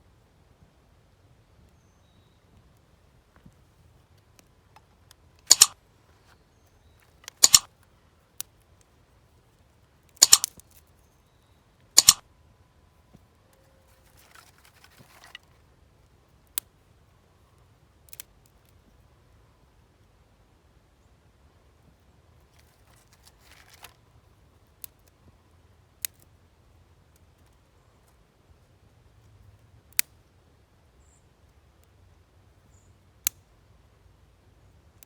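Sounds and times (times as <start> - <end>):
faint clicks: 6.6 - 7.7, 12.0 - 12.2
soft rustle: 13.6 - 15.7, 22.4 - 24.4.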